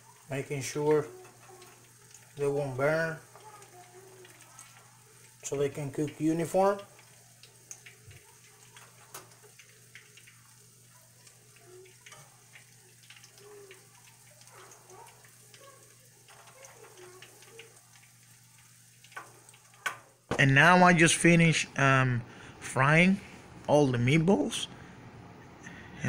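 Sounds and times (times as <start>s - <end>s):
meatballs sizzling in oil: 0.0s - 20.3s.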